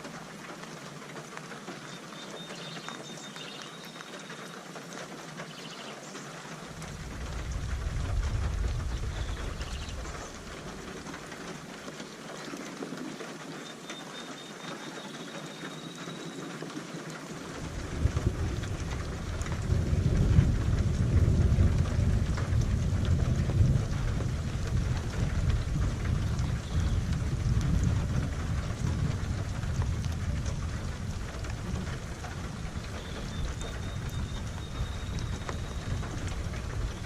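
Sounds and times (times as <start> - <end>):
rain patter: 0.0 - 37.0
thunder rolling: 6.7 - 11.7, 17.5 - 37.0.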